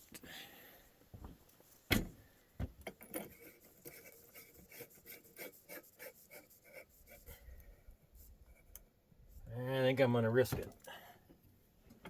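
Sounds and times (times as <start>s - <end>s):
light scrapes and clicks of small parts: 2.8s - 8.9s.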